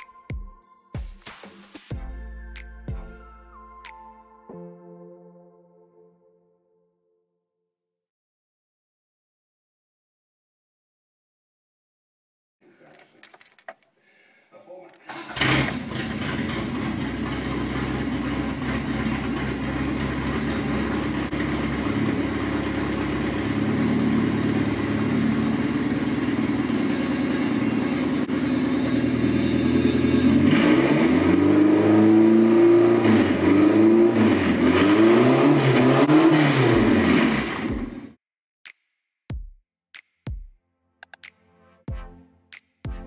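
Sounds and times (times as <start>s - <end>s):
car engine idling and revving: 15.1s - 38.2s.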